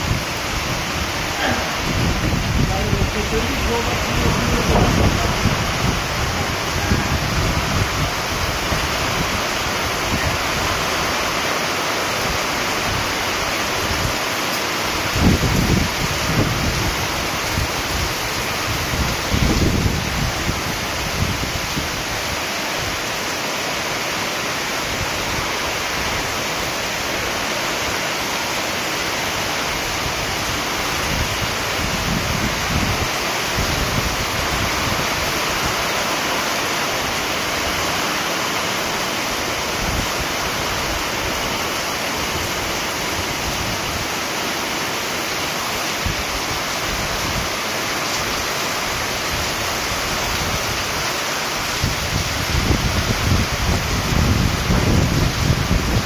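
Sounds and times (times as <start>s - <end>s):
wind buffeting microphone: 0.0s - 11.2s, 15.0s - 23.0s, 29.8s - 35.8s, 51.6s - 56.0s
heavy rain pouring: 0.0s - 56.0s.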